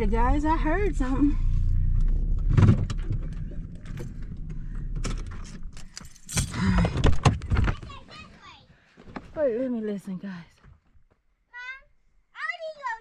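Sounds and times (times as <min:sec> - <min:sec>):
car engine hum: 0:00.0 - 0:06.5
knocks and rattles: 0:02.1 - 0:08.0
keys jangling and clicking: 0:05.1 - 0:06.8.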